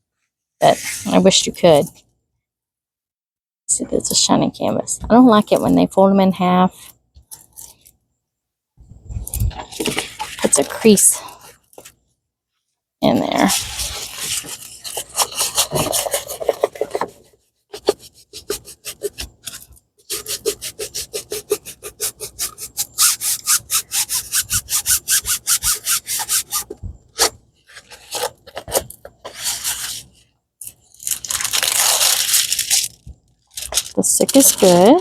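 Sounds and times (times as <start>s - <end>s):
hand rubbing plastic-covered canvas: 0.6s - 1.6s, 9.3s - 12.0s, 13.1s - 30.2s, 30.9s - 35.0s.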